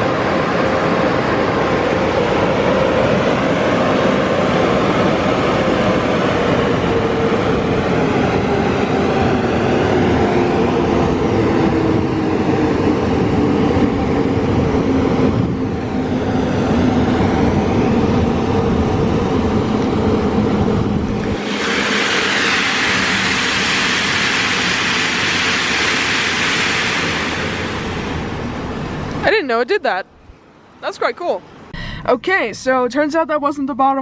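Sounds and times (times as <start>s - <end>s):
car wash dryer blowers rumbling: 0.0s - 29.5s
strong air hiss: 21.2s - 29.2s.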